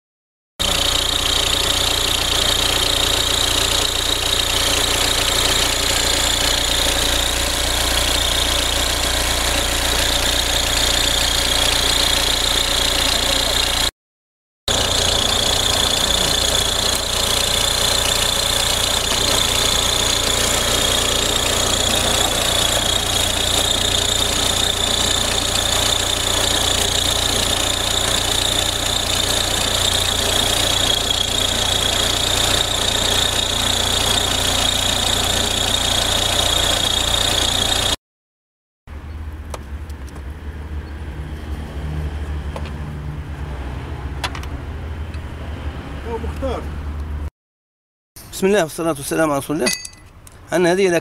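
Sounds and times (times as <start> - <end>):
diesel engine idling: 0.6 - 13.9, 14.7 - 38.0
high-pitched whine: 14.7 - 26.2.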